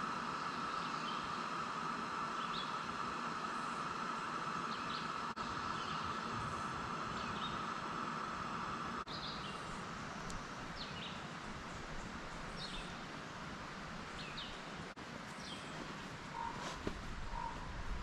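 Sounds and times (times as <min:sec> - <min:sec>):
steady high hum: 0:00.0 - 0:18.0
steady hiss: 0:00.0 - 0:18.0
bird chirping: 0:00.3 - 0:01.5, 0:02.3 - 0:02.9, 0:04.6 - 0:06.3, 0:07.1 - 0:07.8, 0:09.1 - 0:13.1.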